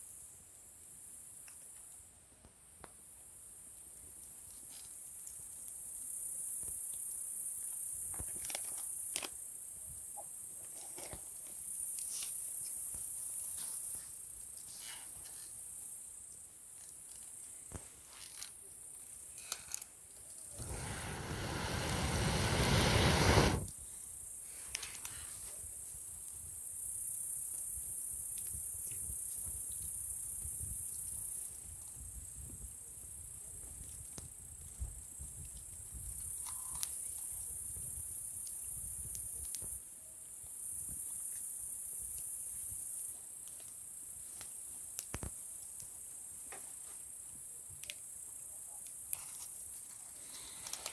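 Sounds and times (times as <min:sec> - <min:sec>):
campfire crackling and popping: 0:19.4 - 0:23.7, 0:44.3 - 0:46.0
rushing whoosh of air: 0:20.6 - 0:23.7.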